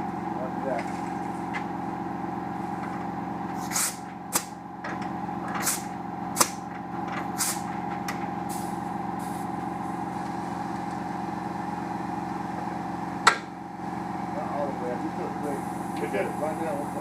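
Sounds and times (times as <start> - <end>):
machine hum: 0.0 - 17.0
jack hissing: 3.6 - 4.5, 5.5 - 7.7, 8.4 - 9.6.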